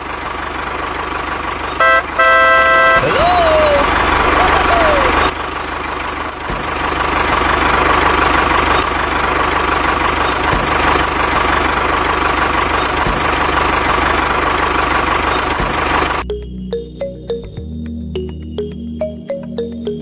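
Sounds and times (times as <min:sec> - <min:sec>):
constant mechanical whine: 0:00.0 - 0:16.3
machine rattling hum: 0:03.9 - 0:16.2.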